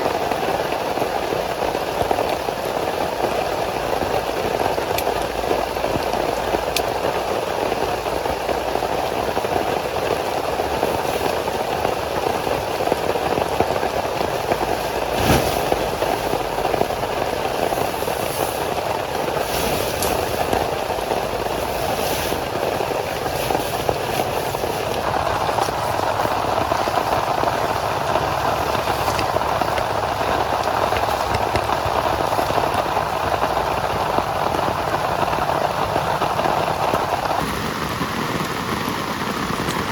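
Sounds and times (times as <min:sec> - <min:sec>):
heavy rain falling: 0:00.0 - 0:39.9
large raindrops tapping: 0:00.0 - 0:39.9.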